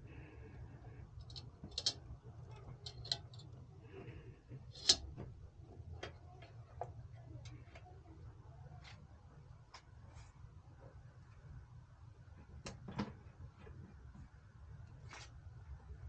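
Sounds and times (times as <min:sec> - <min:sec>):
steady low hum: 0:00.0 - 0:16.0
small hard parts clicking: 0:01.1 - 0:05.3.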